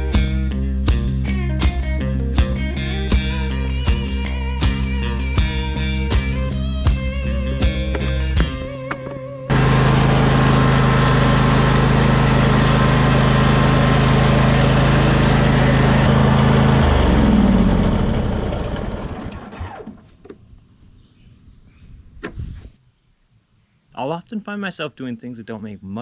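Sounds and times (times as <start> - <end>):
motor running steadily: 0.0 - 19.2.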